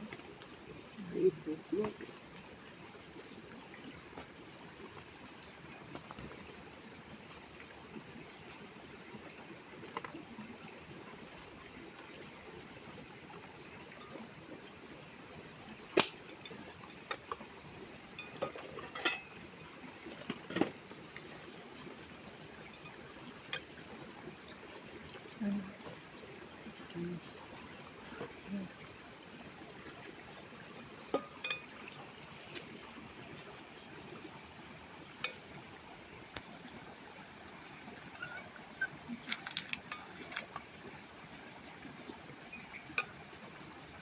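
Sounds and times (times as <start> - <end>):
water running: 29.8 - 36.4, 38.0 - 40.8.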